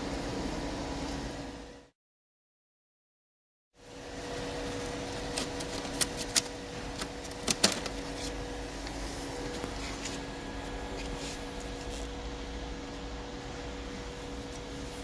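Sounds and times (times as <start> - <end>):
arc welder humming and hissing: 3.8 - 15.0.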